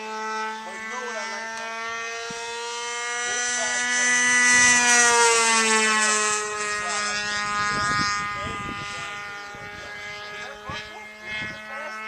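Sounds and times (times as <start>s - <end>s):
model airplane motor whine: 0.0s - 12.0s.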